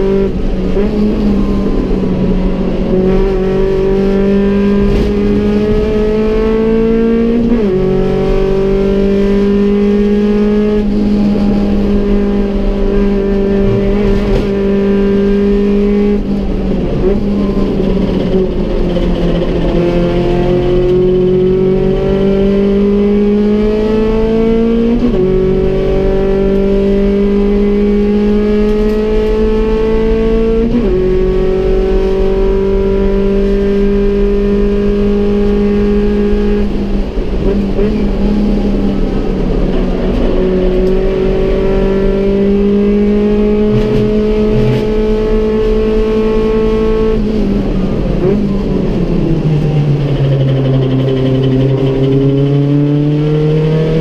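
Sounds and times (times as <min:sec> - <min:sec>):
race car engine pulling through gears: 0:00.0 - 0:54.0.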